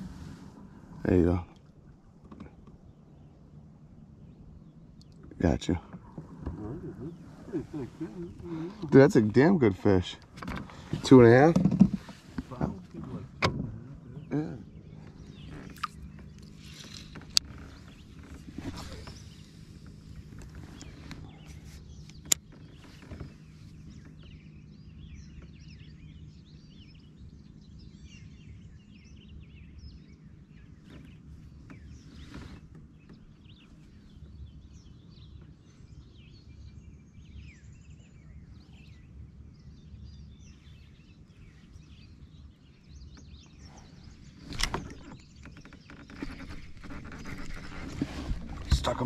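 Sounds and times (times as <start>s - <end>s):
low steady hum: 0.0s - 49.0s
birds chirping and calling: 4.7s - 49.0s
short rustle: 10.2s - 13.4s, 15.0s - 24.1s, 30.9s - 33.0s, 43.7s - 49.0s.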